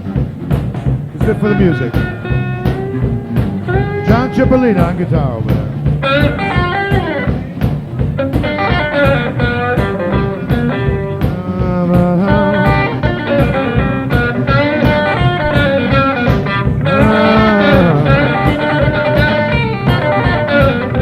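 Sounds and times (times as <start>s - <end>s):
bass: 0.0s - 21.0s
drums: 0.0s - 21.0s
electric guitar lead line: 0.0s - 21.0s.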